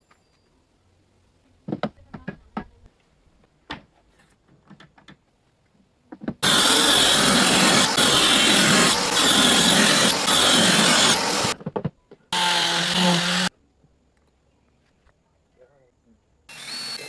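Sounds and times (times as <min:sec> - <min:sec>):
power tool running: 0:06.4 - 0:11.6, 0:12.4 - 0:13.5, 0:16.5 - 0:17.0.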